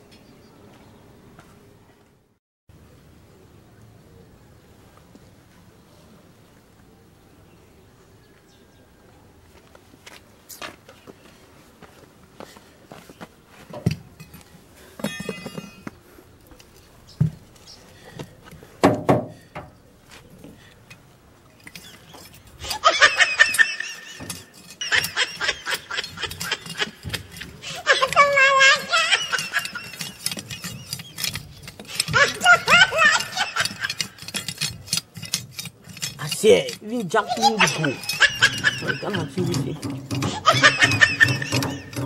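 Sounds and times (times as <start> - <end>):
metal clinks and thuds: 13.7 - 16.0, 18.8 - 19.8, 37.8 - 42.0
loud laughter: 22.0 - 31.0, 31.9 - 34.3, 37.3 - 42.0.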